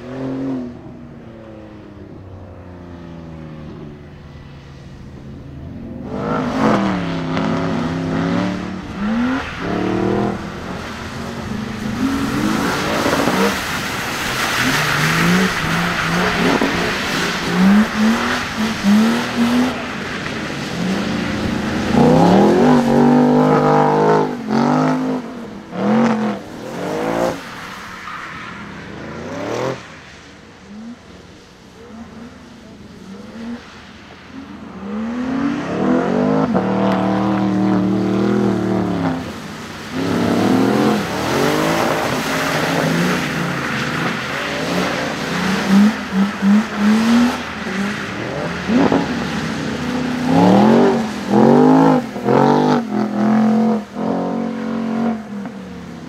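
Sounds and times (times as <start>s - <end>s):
car engine revving: 0.0s - 27.8s, 28.5s - 56.0s.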